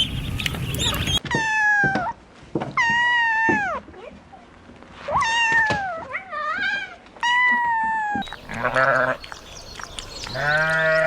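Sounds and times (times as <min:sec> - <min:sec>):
sheep bleating: 0:08.4 - 0:09.3, 0:10.3 - 0:11.0.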